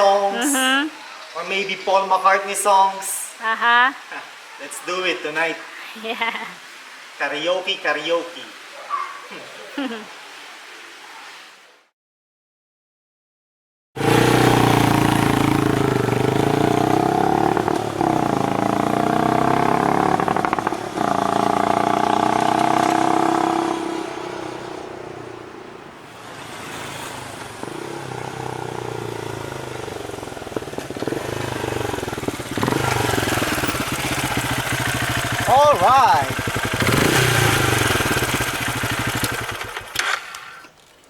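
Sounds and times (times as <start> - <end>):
motorcycle engine accelerating: 14.0 - 25.6, 26.4 - 40.5.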